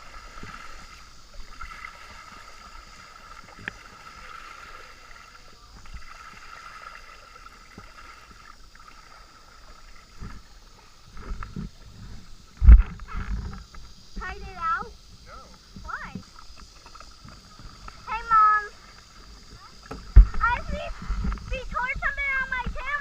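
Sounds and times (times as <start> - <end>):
water moving against hull: 0.0 - 23.0
steady high hum: 8.4 - 23.0.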